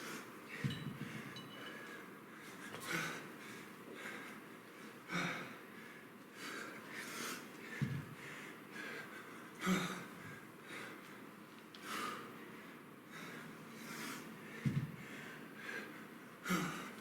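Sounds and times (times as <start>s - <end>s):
man breathing hard: 0.0s - 11.2s, 11.8s - 17.0s.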